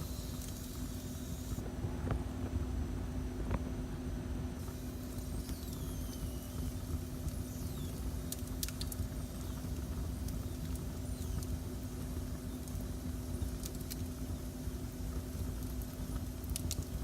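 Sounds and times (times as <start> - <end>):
fire crackles: 6.6 - 17.0
wood fire rumbling: 6.8 - 17.0.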